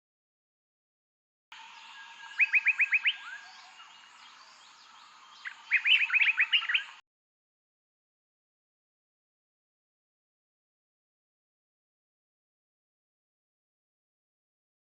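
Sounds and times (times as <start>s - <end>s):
faint background bird chirps: 1.5s - 7.0s
bird chirping rising notes: 1.6s - 7.0s.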